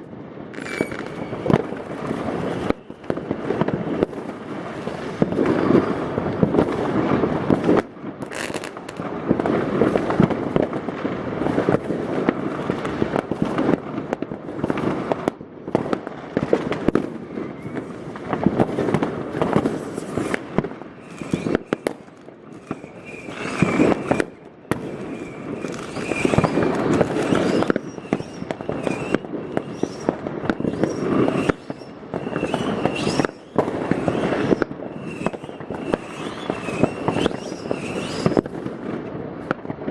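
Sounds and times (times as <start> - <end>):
firecrackers crackling: 0.0 - 39.9
fireworks banging: 0.0 - 39.9.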